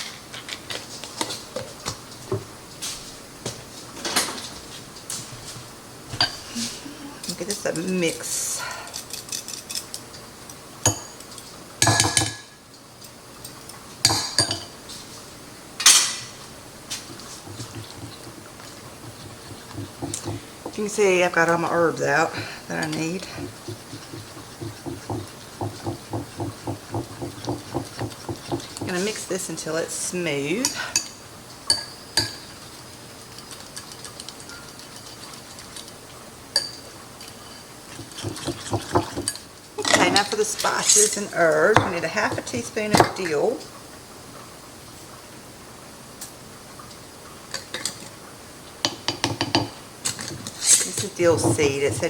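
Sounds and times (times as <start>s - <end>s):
utensil scraping mixing bowl: 16.4s - 30.9s, 37.2s - 43.4s, 50.1s - 52.0s.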